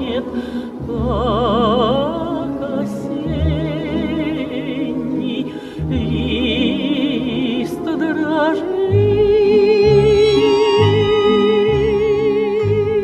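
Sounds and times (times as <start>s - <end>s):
operatic solo singing: 3.6s - 13.0s
instrumental accompaniment: 9.2s - 13.0s.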